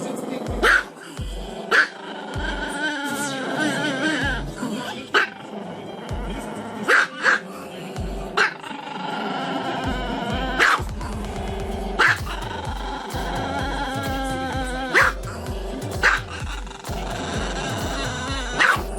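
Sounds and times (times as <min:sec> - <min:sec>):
background music with bass beat: 0:00.0 - 0:01.7, 0:02.3 - 0:04.8, 0:06.1 - 0:06.7, 0:07.9 - 0:08.5, 0:09.8 - 0:18.9.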